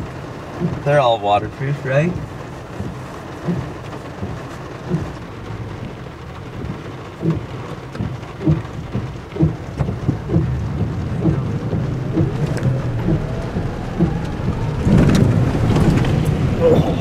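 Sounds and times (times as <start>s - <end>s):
rain on vehicle roof: 0.0s - 17.0s
raindrops knocking: 0.0s - 17.0s
low rumble: 2.1s - 17.0s.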